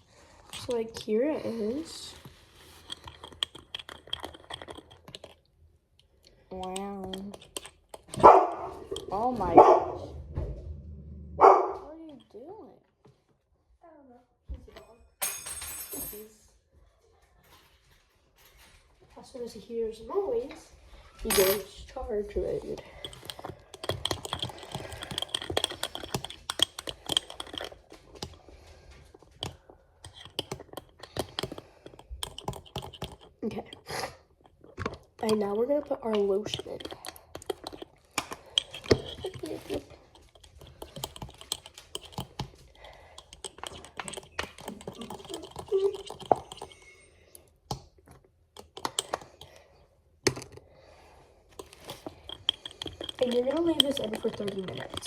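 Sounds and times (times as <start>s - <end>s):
spoon clinking and scraping bowl: 0.5s - 5.5s, 6.2s - 9.6s, 21.2s - 47.5s, 51.5s - 55.0s.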